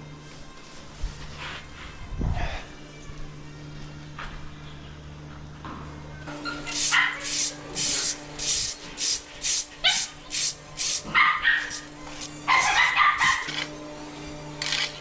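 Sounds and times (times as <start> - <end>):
dog barking: 6.9 - 7.3, 11.1 - 11.8, 12.5 - 13.5
dog yelping: 6.9 - 7.3, 11.1 - 11.8, 12.5 - 13.5.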